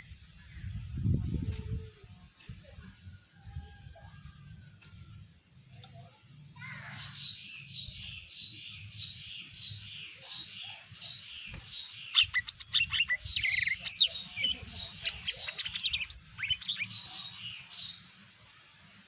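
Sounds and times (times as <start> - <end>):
bird singing sharp chirps and whistles: 11.0 - 17.9.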